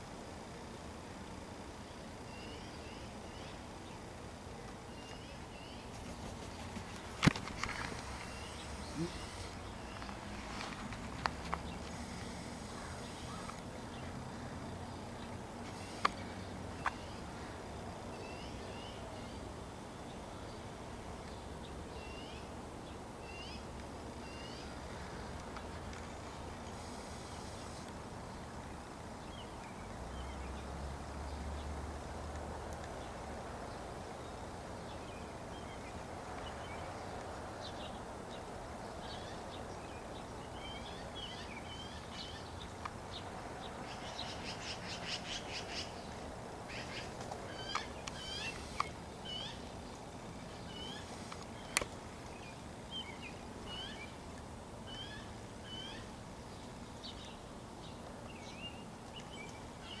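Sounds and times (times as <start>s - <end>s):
small birds chirping: 0.3s - 60.0s
fast rattling bird call: 5.2s - 10.0s, 43.8s - 49.6s.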